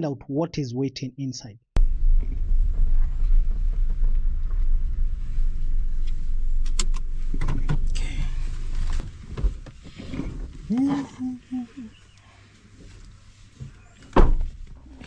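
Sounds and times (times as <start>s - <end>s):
car engine and road noise: 1.8s - 15.0s
sharp clicks and rattles: 6.0s - 8.2s.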